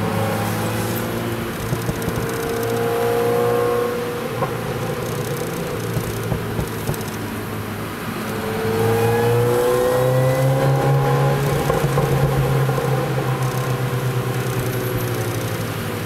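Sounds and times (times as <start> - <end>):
tyre and road noise: 0.0 - 16.0
car engine accelerating: 8.5 - 15.9.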